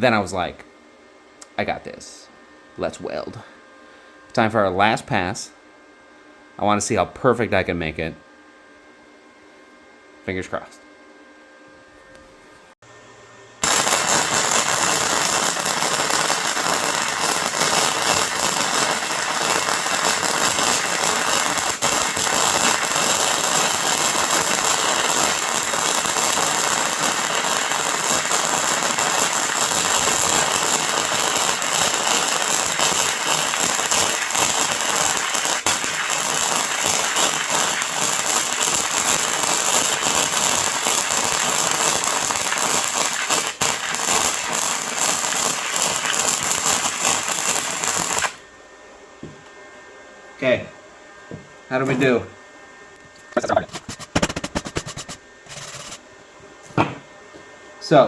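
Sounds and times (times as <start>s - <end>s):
crackling welding arc: 13.6s - 48.4s, 53.4s - 56.0s.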